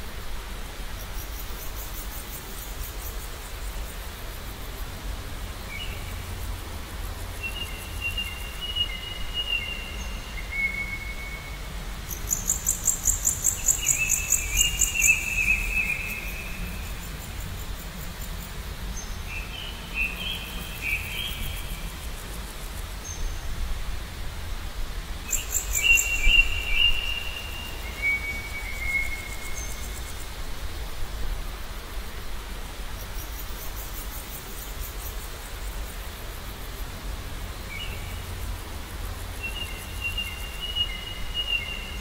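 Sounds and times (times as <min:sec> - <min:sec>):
birds singing whistled phrases: 0:25.3 - 0:29.8.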